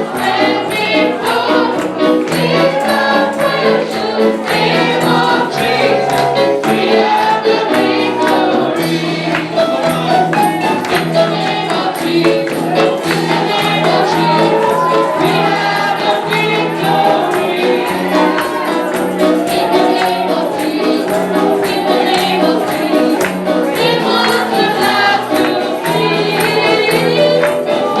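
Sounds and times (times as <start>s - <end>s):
gospel choir singing: 0.0s - 28.0s
tambourine beat: 0.0s - 28.0s.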